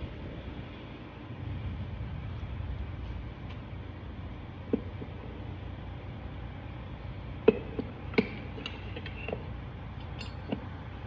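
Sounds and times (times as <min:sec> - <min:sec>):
light clicks and knocks of metal parts: 0:07.4 - 0:10.8.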